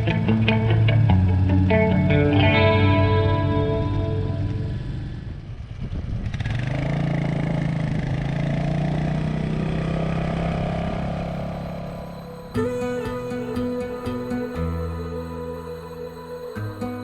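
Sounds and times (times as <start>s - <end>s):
guitar music: 0.0s - 5.0s, 11.3s - 17.0s
road and wind noise: 0.0s - 12.5s
motorcycle engine running: 4.4s - 12.7s.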